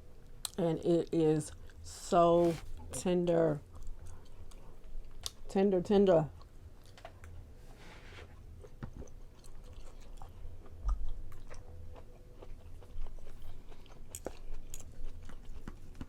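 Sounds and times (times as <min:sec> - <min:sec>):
person chewing food: 0:03.7 - 0:05.5, 0:08.3 - 0:16.0.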